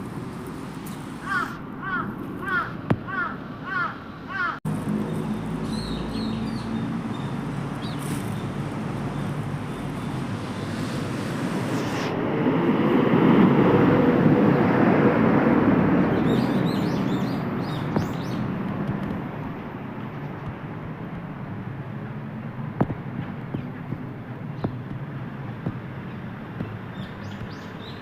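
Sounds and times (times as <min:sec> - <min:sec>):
passing vehicle rumble: 0:00.0 - 0:28.0
small birds chirping: 0:00.7 - 0:10.8, 0:16.0 - 0:18.5, 0:26.0 - 0:28.0.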